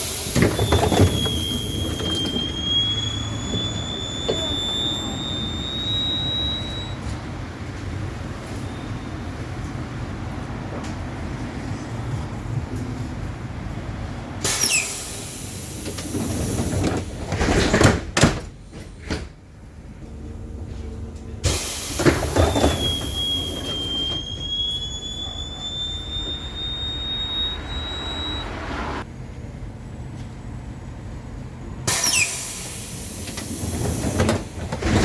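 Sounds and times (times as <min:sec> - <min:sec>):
doors thudding shut: 0:17.2 - 0:19.4.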